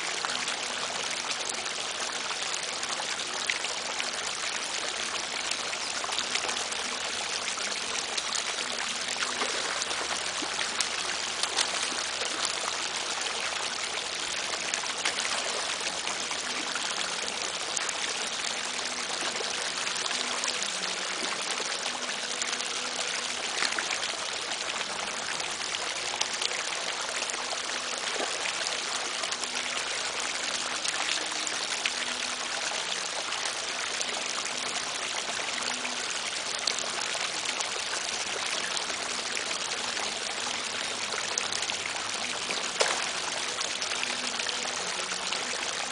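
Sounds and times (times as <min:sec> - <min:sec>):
running water: 0:00.0 - 0:45.9
faint ticks and splashes: 0:07.5 - 0:13.6, 0:42.4 - 0:43.9.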